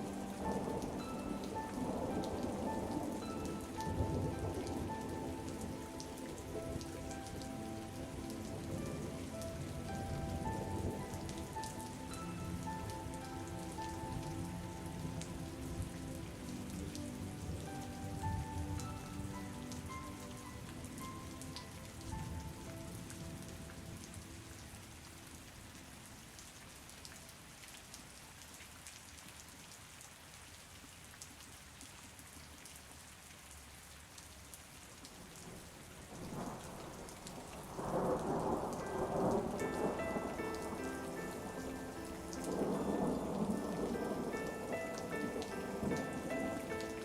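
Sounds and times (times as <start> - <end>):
soft slow instrumental music: 0.0 - 26.5, 36.3 - 47.0
rain falling: 0.0 - 47.0.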